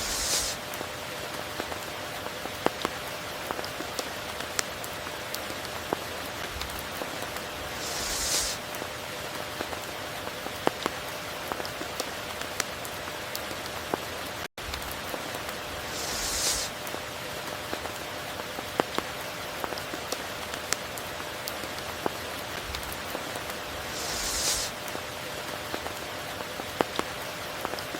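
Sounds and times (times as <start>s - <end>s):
rain hiss: 0.0s - 27.9s
raindrops ticking: 0.5s - 27.9s.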